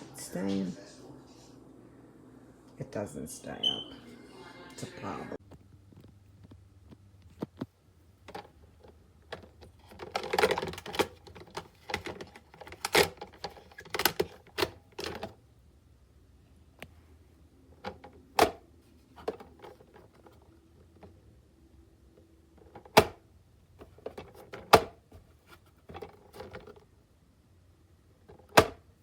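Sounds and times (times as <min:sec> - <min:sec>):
plastic lid clicking and clattering: 0:08.2 - 0:15.3, 0:17.8 - 0:18.6, 0:22.6 - 0:23.2, 0:23.8 - 0:25.0, 0:28.3 - 0:28.8.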